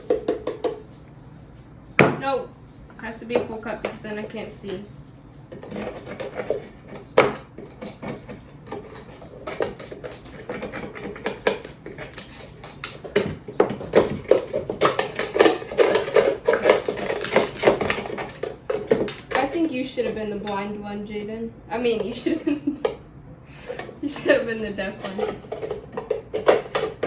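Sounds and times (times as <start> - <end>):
utensils scraping and clinking dishes: 5.5 - 23.0, 23.6 - 27.0.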